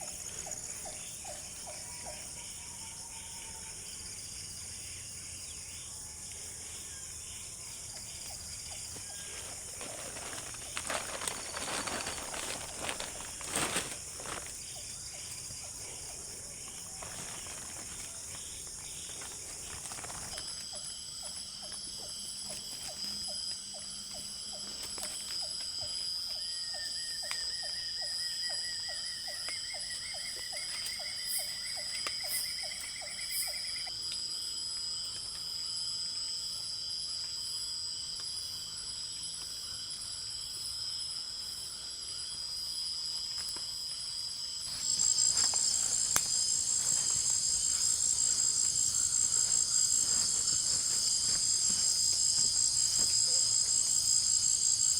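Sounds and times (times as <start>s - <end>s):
insect chorus shrilling: 0.0s - 34.6s, 38.4s - 54.9s
loud high insect chorus: 0.0s - 54.9s.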